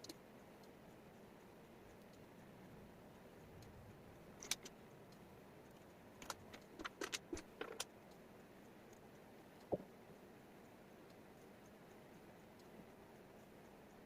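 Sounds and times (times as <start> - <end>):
wooden puzzle pieces clicking: 4.4 - 4.7, 6.2 - 7.9.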